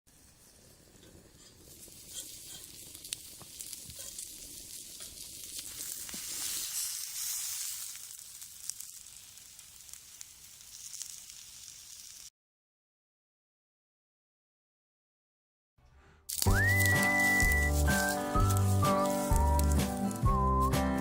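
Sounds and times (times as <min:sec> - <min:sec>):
food sizzling in a skillet: 0:00.1 - 0:12.3, 0:16.3 - 0:20.4.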